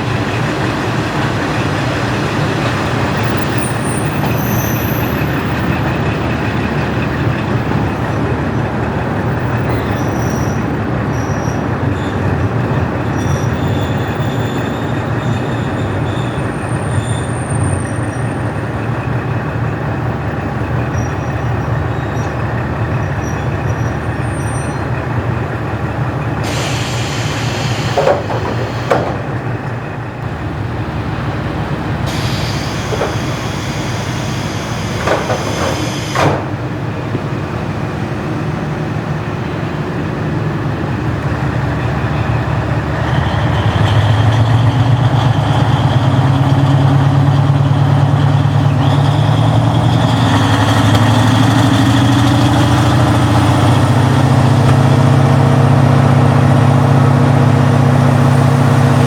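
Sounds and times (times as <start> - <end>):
diesel railcar rumbling: 0.0 - 59.0
short squeals: 9.6 - 18.6, 26.4 - 29.5, 32.1 - 36.6
hiss: 26.4 - 28.9, 32.0 - 36.4.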